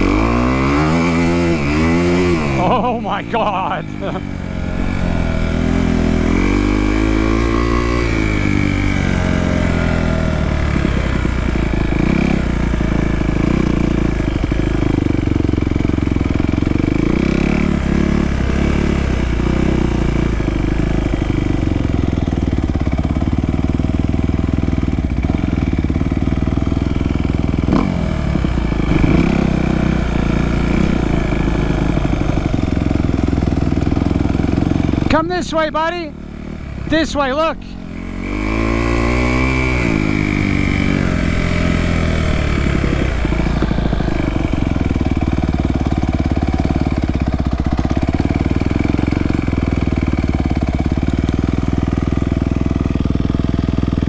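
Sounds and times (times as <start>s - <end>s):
dirt bike engine revving: 0.0s - 12.5s, 28.8s - 35.3s, 37.8s - 46.7s.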